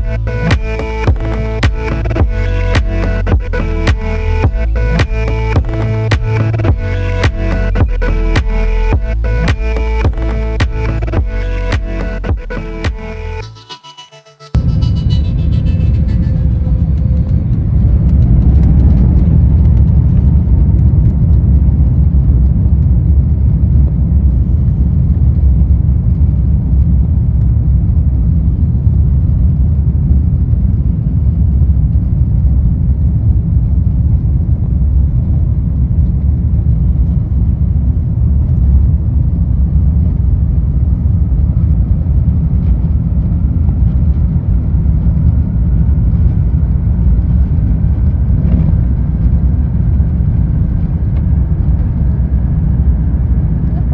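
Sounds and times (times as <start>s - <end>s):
jet engines low rumble: 0.0s - 11.4s, 14.6s - 53.9s
faint rising whine: 0.0s - 20.6s.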